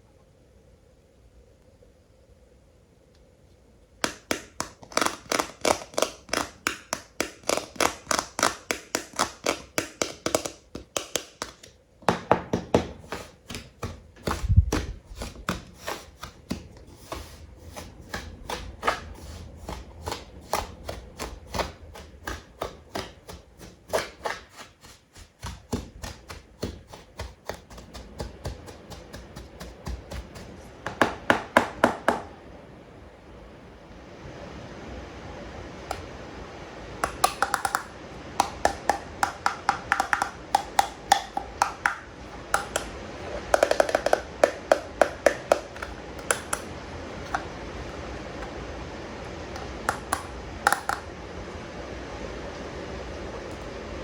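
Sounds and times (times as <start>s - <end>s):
toy figures tapped by hand: 4.0s - 16.6s, 37.0s - 46.7s, 49.6s - 51.1s.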